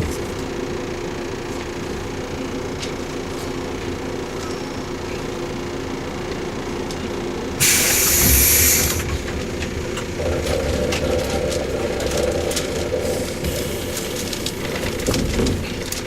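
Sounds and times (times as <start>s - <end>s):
train motor hum: 0.0s - 16.0s
compressed air hiss: 7.6s - 9.0s.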